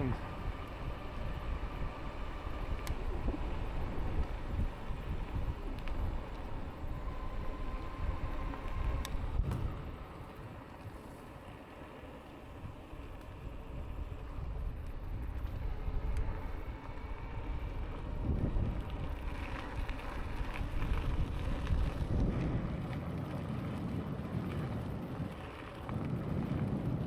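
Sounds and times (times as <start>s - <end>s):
wind buffeting microphone: 0.0s - 11.3s, 12.4s - 27.0s.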